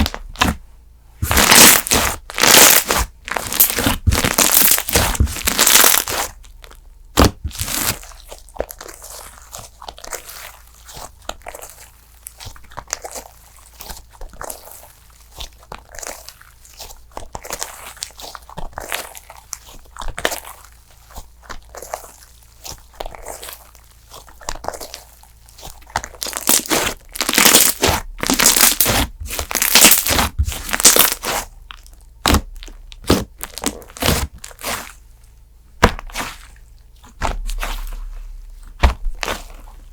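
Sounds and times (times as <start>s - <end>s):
slime popping and crackling: 0.0s - 0.6s, 1.2s - 35.1s, 35.8s - 39.9s.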